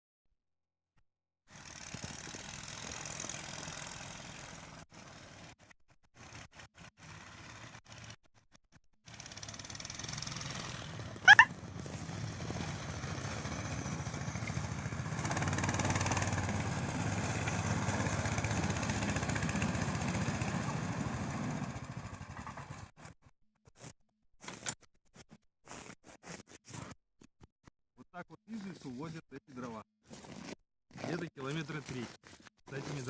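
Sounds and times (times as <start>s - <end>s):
small engine running: 1.5s - 26.8s.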